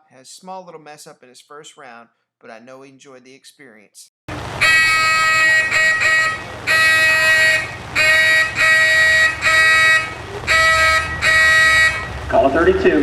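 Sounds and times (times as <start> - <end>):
duck call quacks: 4.6 - 12.3.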